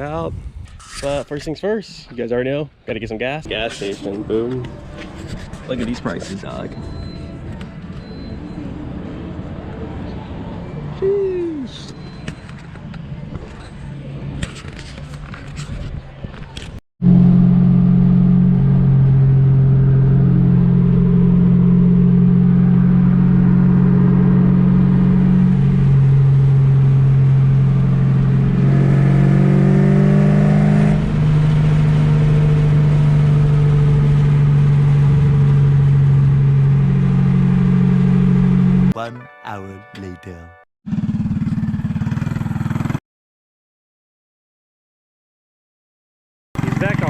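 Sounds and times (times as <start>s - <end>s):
car engine exhaust drone: 3.6s - 10.3s, 17.0s - 38.9s, 46.6s - 47.0s.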